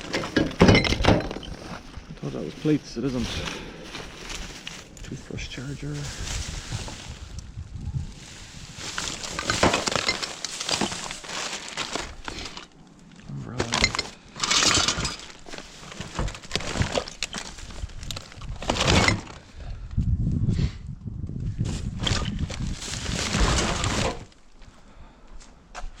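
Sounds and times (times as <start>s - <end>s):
rubbish clattering and clinking: 0.0s - 4.8s, 8.8s - 12.7s, 13.5s - 19.5s, 22.0s - 24.4s.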